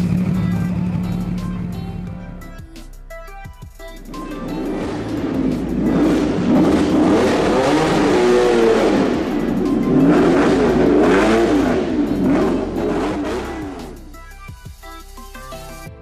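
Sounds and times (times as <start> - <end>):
car engine revving: 0.0 - 2.6, 4.0 - 14.3
background music: 0.0 - 16.0.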